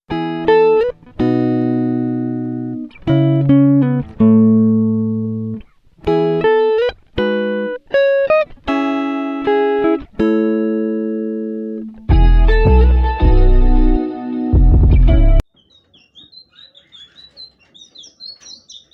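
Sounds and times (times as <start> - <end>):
plucked guitar music: 0.1 - 15.5.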